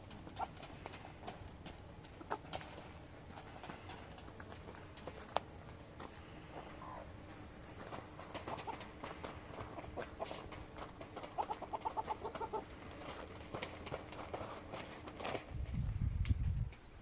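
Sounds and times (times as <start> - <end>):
chickens clucking: 0.0 - 15.4.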